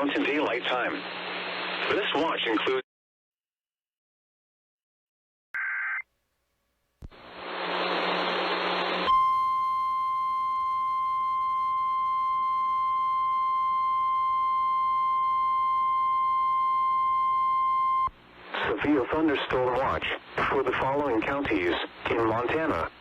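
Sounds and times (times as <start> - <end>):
radio static: 0.0 - 2.8, 18.4 - 23.0
steady warning alarm tone: 9.1 - 18.1.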